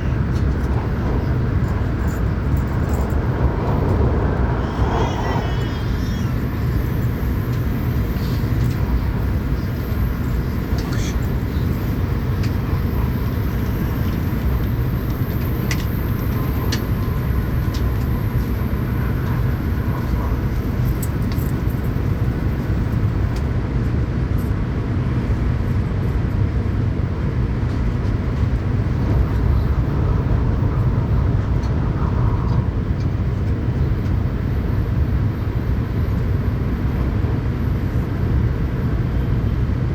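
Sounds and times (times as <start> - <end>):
train wheels rumbling on rails: 0.0 - 39.9
air rushing past: 3.1 - 6.8.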